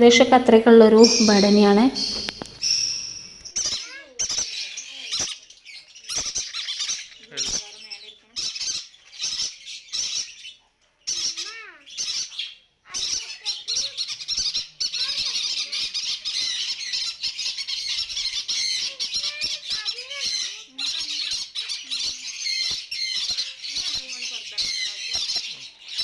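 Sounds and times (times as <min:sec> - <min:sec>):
low whistling bird calls: 0:00.0 - 0:03.4
parrots squawking and screeching: 0:04.2 - 0:26.0.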